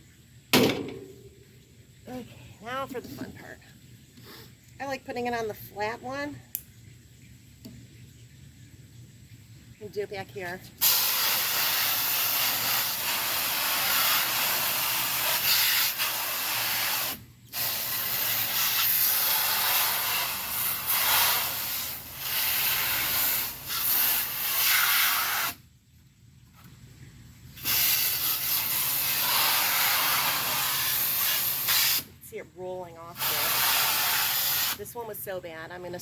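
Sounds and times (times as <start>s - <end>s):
hose nozzle spraying water: 10.8s - 25.6s, 27.6s - 32.2s, 32.9s - 35.1s.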